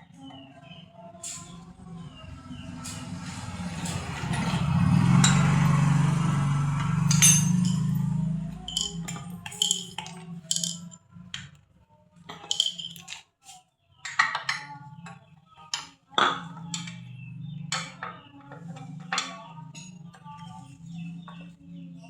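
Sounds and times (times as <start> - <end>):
metal tools clinking: 6.8 - 11.0, 12.3 - 13.2.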